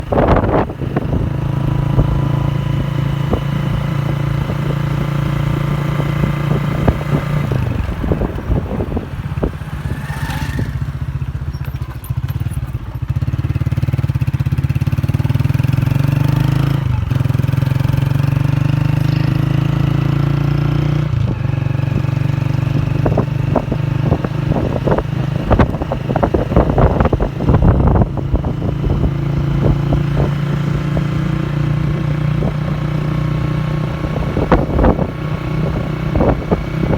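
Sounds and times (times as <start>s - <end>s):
vehicle engine changing gear: 0.0s - 13.6s.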